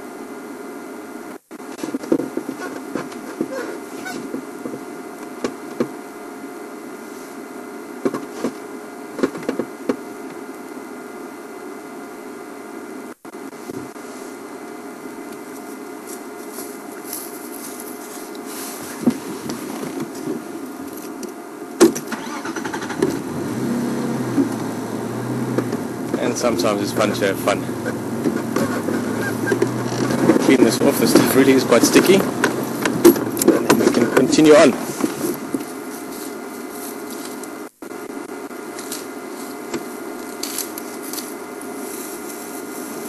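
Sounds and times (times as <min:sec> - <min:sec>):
vehicle engine idling: 0:22.1 - 0:36.2
sharp clicks and knocks: 0:32.3 - 0:34.3.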